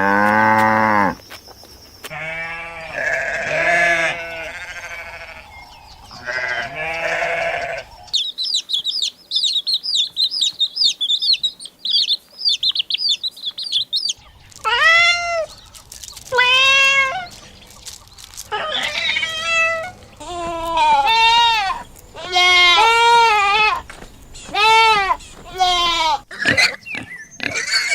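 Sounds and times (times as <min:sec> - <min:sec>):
livestock bleating: 0:02.1 - 0:08.1, 0:14.6 - 0:17.6, 0:18.3 - 0:26.3
rapid high-pitched chirping: 0:07.9 - 0:26.3.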